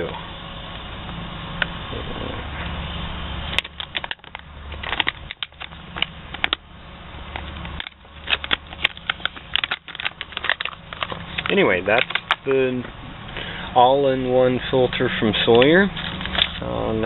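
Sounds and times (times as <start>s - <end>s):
steady low hum: 0.0s - 17.0s
plastic packaging crinkling: 3.5s - 6.6s, 7.2s - 12.5s, 15.5s - 16.7s.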